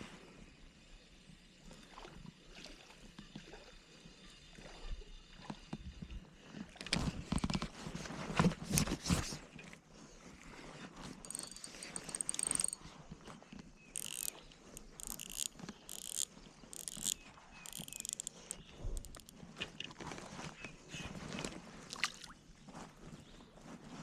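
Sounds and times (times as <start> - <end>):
fishing reel cranking: 11.2 - 12.8, 14.0 - 19.3
handling clicks and knocks: 11.2 - 12.8, 14.0 - 19.3.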